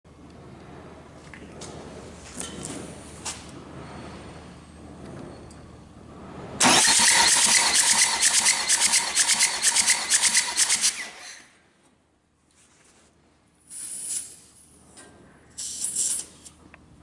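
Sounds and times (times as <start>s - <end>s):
diesel engine cranking: 6.1s - 11.5s.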